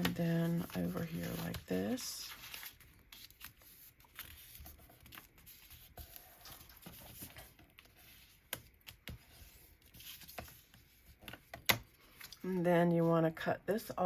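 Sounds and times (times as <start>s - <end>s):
paper rustling: 0.0s - 12.4s.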